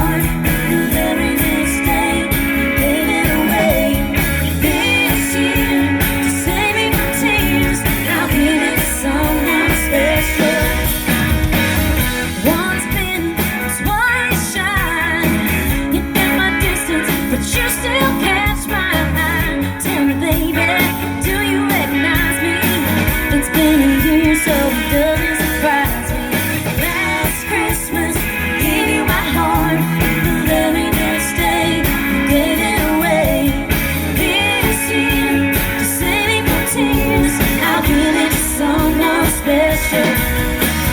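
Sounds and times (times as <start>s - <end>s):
person singing: 0.0s - 11.6s, 12.3s - 40.9s
guitar accompaniment: 0.0s - 40.9s.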